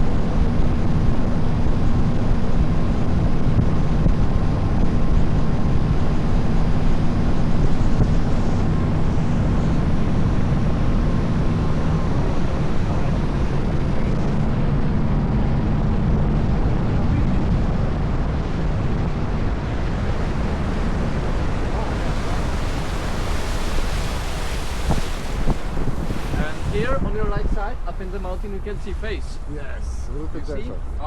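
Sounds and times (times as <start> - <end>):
boat engine running: 0.3 - 31.0
loud rushing noise: 17.3 - 30.4.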